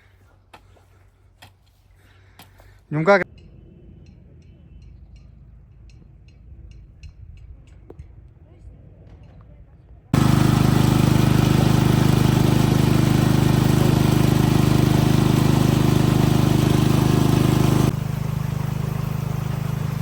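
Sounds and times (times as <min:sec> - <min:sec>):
engine running steadily: 0:10.2 - 0:20.0.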